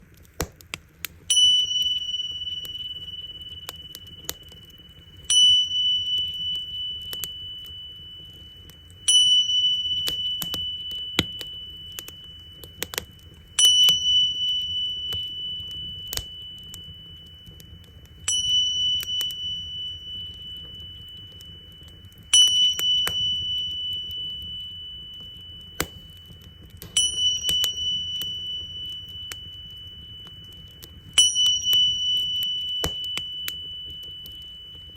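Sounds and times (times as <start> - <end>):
campfire crackling and popping: 0.0 - 34.9
small cymbals ringing: 1.2 - 34.9.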